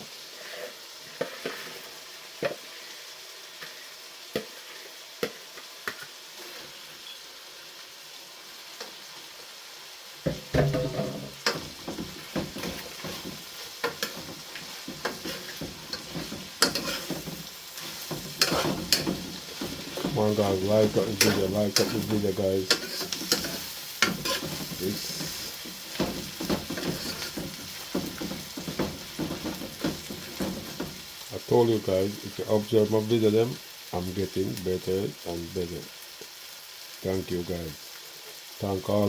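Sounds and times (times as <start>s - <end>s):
hot oil sizzling: 0.0s - 39.0s
stirring and clatter: 10.6s - 31.0s.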